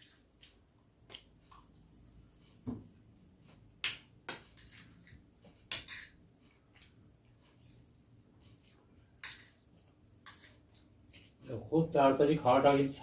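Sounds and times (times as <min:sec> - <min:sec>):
wet eating smacks and clicks: 0:00.1 - 0:01.9, 0:06.6 - 0:11.4.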